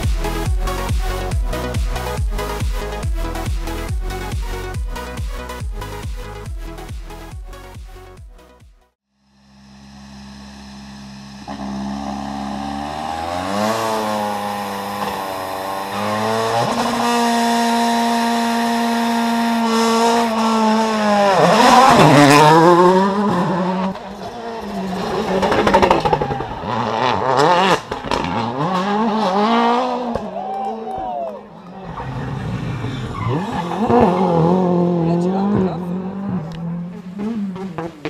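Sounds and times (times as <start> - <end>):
rally car engine revving past: 11.5 - 30.4, 31.8 - 38.0.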